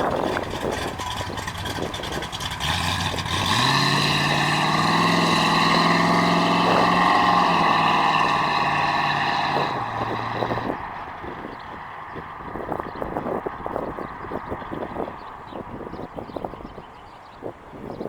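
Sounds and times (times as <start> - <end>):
car engine revving: 0.0 - 12.7.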